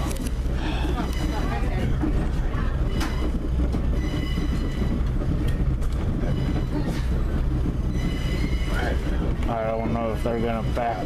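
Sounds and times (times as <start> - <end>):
train wheels rumbling on rails: 0.0 - 11.0
faint high-pitched wheel squeal: 2.8 - 5.0, 6.2 - 7.2, 7.9 - 9.2.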